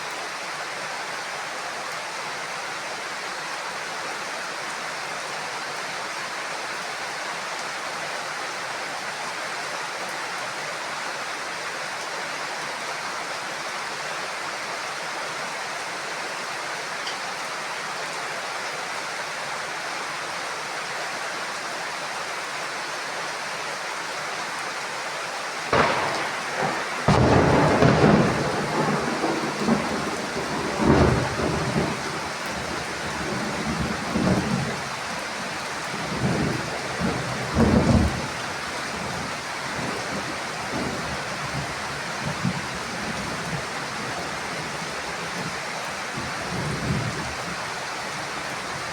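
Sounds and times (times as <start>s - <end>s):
heavy rain on a roof: 0.0s - 48.9s
thunder crack: 25.7s - 32.2s
rolling thunderclap: 25.7s - 34.8s, 36.0s - 38.4s.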